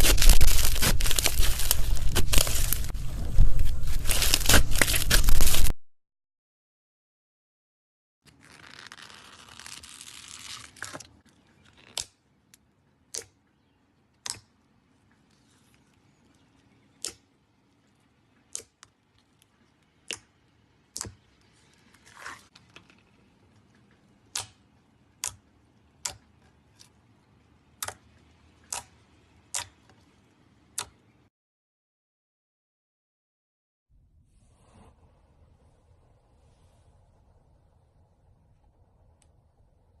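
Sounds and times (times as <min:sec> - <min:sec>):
slime squelch: 0:00.0 - 0:03.0
slime crackling: 0:00.0 - 0:05.7.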